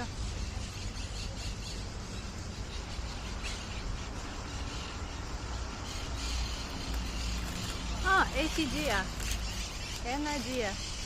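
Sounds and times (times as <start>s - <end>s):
parrots chirping and squawking: 2.2s - 11.0s.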